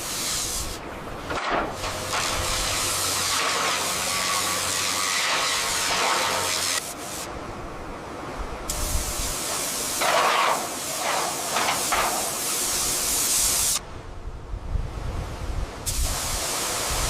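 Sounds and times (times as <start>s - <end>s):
loud hiss of spray: 0.0s - 7.3s, 8.7s - 13.8s, 15.8s - 17.0s.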